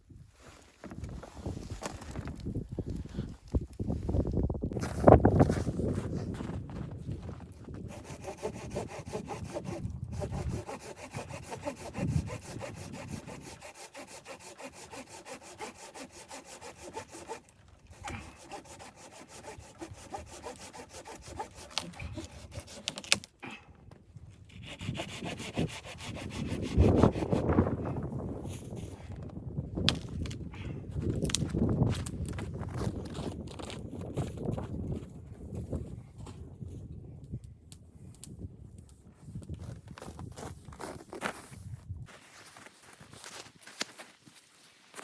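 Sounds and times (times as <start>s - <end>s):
hand saw cutting wood: 7.8s - 23.3s, 24.5s - 27.7s.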